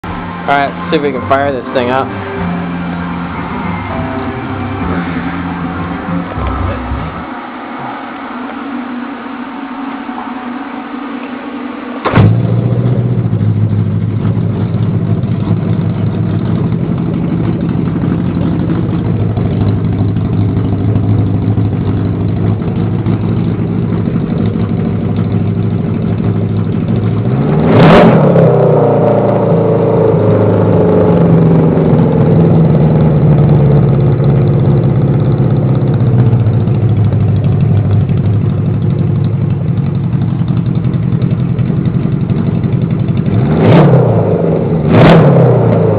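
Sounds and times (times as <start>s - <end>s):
motorcycle engine starting and running: 0.0s - 45.9s
engine revving with sharp pop: 12.0s - 45.9s.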